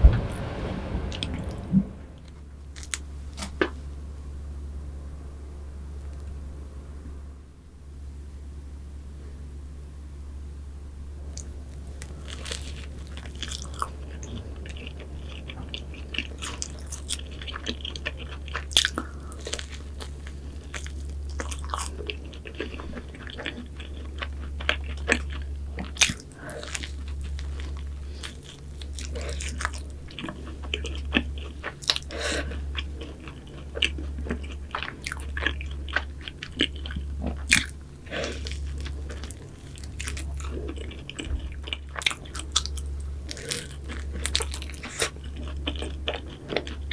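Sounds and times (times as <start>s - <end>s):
low pulsing throb: 0.0s - 2.7s
chewing crisp pastries: 11.3s - 46.9s.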